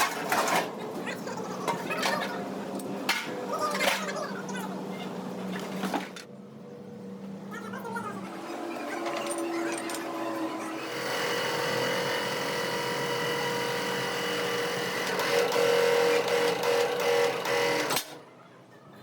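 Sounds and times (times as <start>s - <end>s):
power tool whining: 9.0s - 18.2s.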